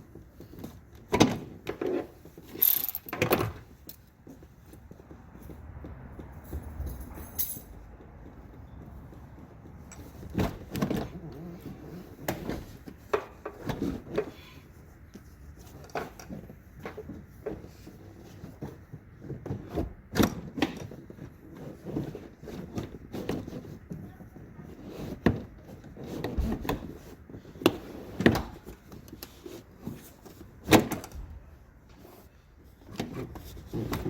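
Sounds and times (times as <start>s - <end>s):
knocks and rattles of tools: 0.0s - 14.4s.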